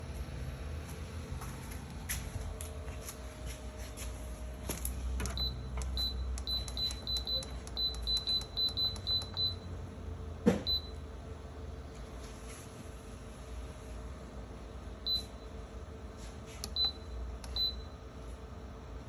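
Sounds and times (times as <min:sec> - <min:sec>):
control panel beeping: 0:05.2 - 0:09.7, 0:16.6 - 0:17.9.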